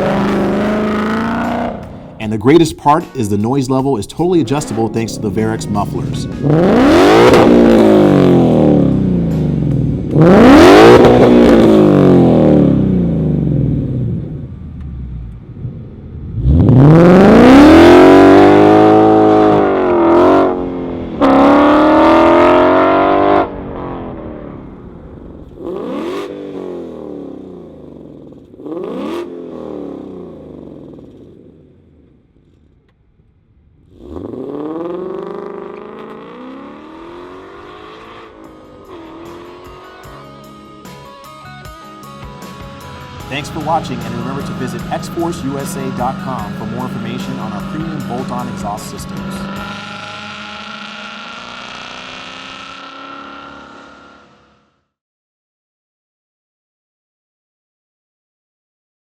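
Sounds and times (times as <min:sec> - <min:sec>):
car engine revving in bursts: 0:00.0 - 0:02.2, 0:04.6 - 0:14.3, 0:15.6 - 0:24.0, 0:25.6 - 0:31.0, 0:33.8 - 0:40.3, 0:43.0 - 0:54.5.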